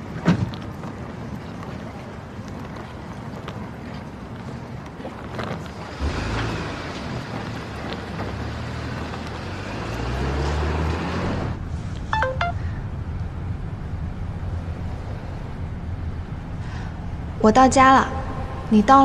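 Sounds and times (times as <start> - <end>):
car engine accelerating: 5.9 - 17.3
short electronic beeps: 12.2 - 12.6.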